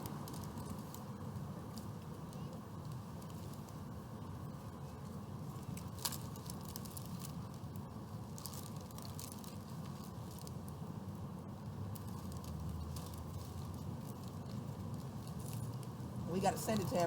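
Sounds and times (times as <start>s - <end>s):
crackly clicks: 0.0s - 3.8s, 11.9s - 16.0s
low rumble of traffic: 0.0s - 17.0s
wrapper paper crinkling: 5.6s - 7.6s, 8.2s - 10.7s, 11.9s - 17.0s.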